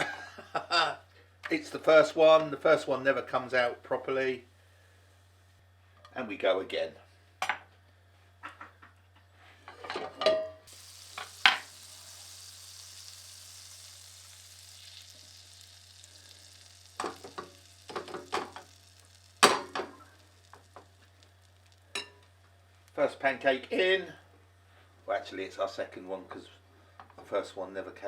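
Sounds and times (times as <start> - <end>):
batter sizzling in a frying pan: 10.7 - 23.9.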